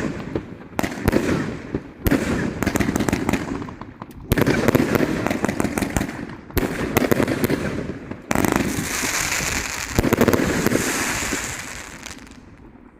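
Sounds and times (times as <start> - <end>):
fireworks crackling and bangs: 0.0 - 12.9
fireworks hiss: 8.7 - 12.4.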